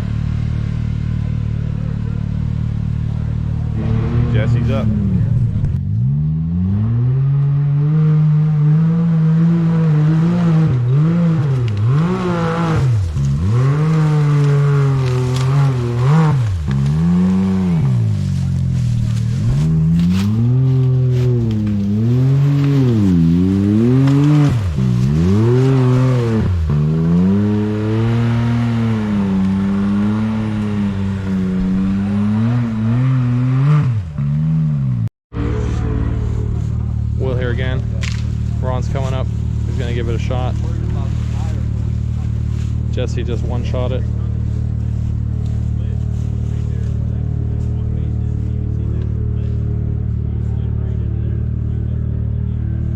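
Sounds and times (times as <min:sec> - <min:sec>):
engine revving hard: 0:03.0 - 0:42.2.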